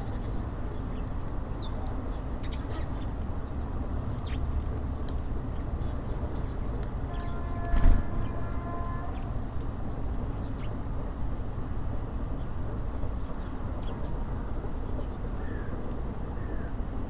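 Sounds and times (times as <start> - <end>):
small birds chirping: 0.0 - 11.2
low traffic rumble: 0.0 - 17.0.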